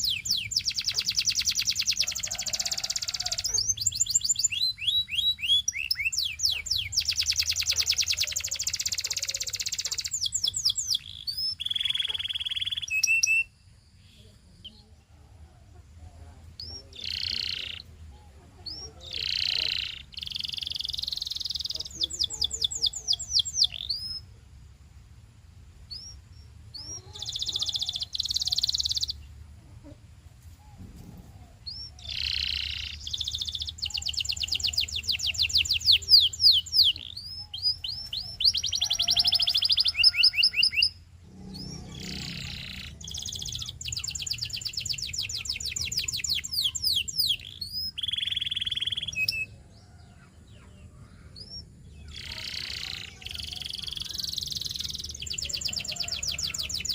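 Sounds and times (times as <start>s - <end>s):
canary singing trills: 0.0s - 15.0s, 15.6s - 24.4s, 25.9s - 30.0s, 30.7s - 56.9s
faint low hum: 40.9s - 56.9s.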